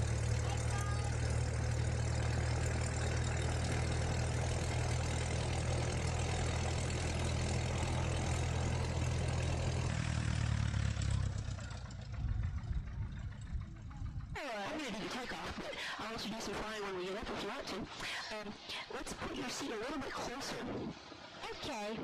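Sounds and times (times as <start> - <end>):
plane engine idling: 0.0 - 16.0.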